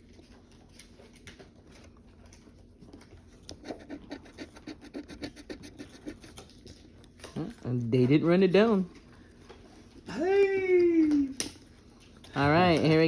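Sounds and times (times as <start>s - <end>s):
scratch-off ticket being scratched: 3.5s - 6.8s.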